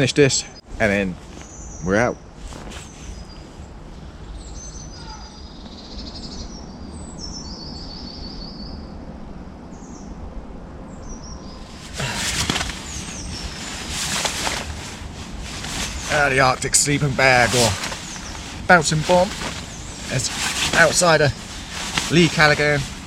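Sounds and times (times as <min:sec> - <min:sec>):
low background noise: 0:00.0 - 0:23.0
birds singing: 0:01.3 - 0:09.0, 0:10.9 - 0:23.0
rustling of handled gear: 0:02.4 - 0:03.3, 0:11.7 - 0:23.0.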